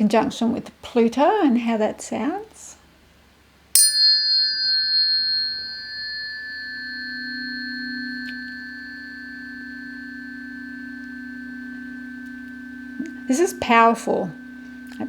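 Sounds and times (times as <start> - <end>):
low steady tone: 3.8 - 15.0
tuning forks ringing high tones: 3.8 - 15.0.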